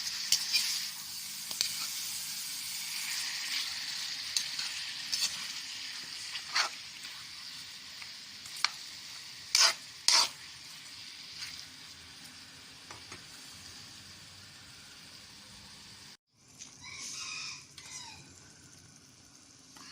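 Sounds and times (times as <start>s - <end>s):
food sizzling in a frying pan: 0.0s - 19.9s
utensil scraping a pan: 3.1s - 7.2s, 9.5s - 10.4s.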